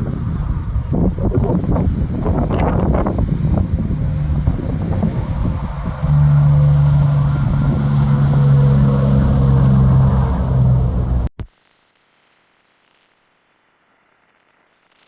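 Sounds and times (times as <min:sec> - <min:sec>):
truck diesel engine running: 0:00.0 - 0:11.3.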